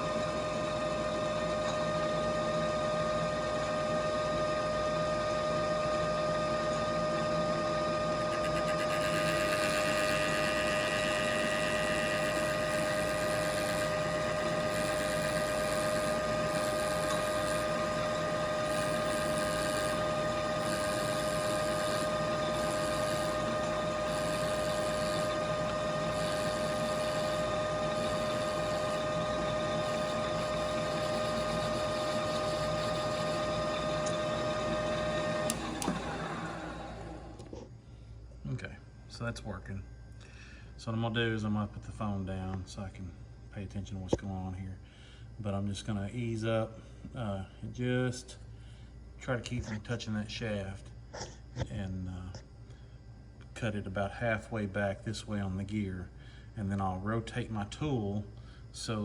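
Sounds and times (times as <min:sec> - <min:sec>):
metal lathe motor whine: 0:00.0 - 0:37.8.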